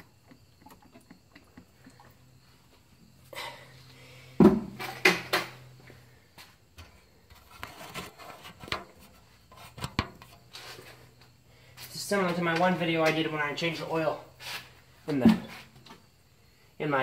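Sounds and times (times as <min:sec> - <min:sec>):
oil jug clunking: 0:00.0 - 0:02.8, 0:04.4 - 0:05.6, 0:08.5 - 0:10.6
light knocks and rubbing: 0:06.8 - 0:11.1.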